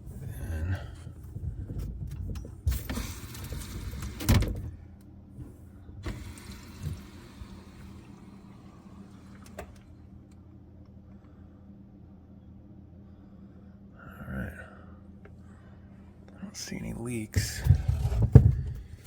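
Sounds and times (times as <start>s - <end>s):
water hissing through pipes: 6.0s - 9.6s.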